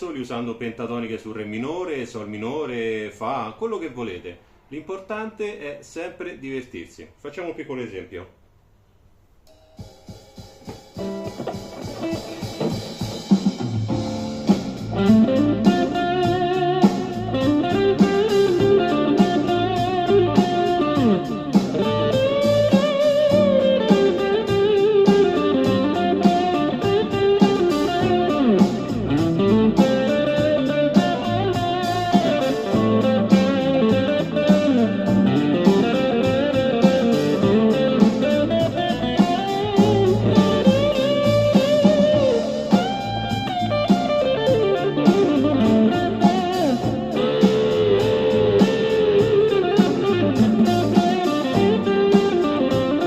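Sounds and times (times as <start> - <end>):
blues backing track with drums: 9.5 - 53.0
electric guitar blues solo: 11.0 - 13.4, 14.8 - 53.0.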